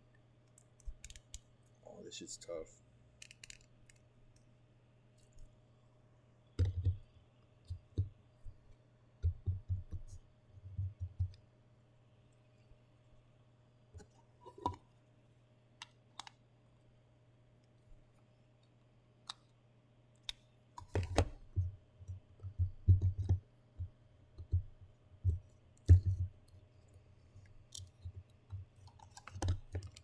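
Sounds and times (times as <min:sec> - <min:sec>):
faint steady hum: 0:00.0 - 0:30.0
sharp clicks: 0:00.5 - 0:01.5.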